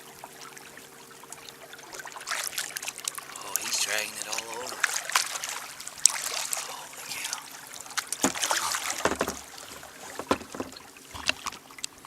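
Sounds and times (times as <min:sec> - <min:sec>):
water splashing off paddle: 0:01.9 - 0:11.7
paddle knocking against boat: 0:08.0 - 0:11.5.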